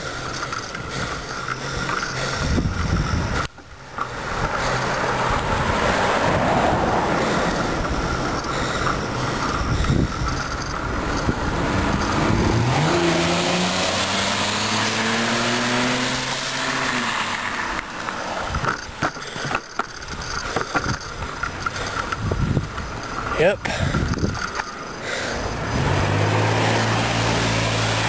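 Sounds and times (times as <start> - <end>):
car engine passing: 1.0 - 19.4, 24.9 - 28.0
wind noise on microphone: 2.2 - 3.6, 9.0 - 13.3, 20.0 - 24.6.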